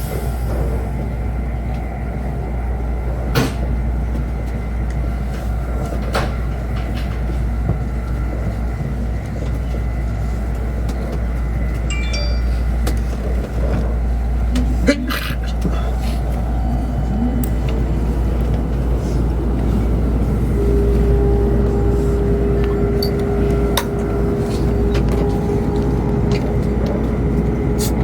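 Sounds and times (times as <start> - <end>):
train rumble inside cabin: 0.0 - 28.0
brief high tones: 11.9 - 12.9.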